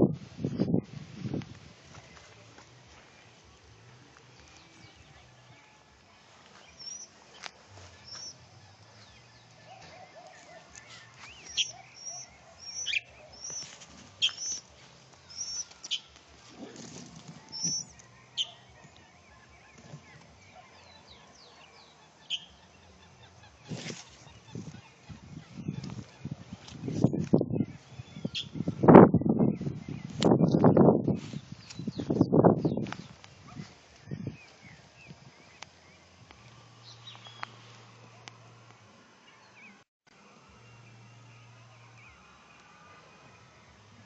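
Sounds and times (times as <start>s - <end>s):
small birds chirping: 6.5s - 38.5s.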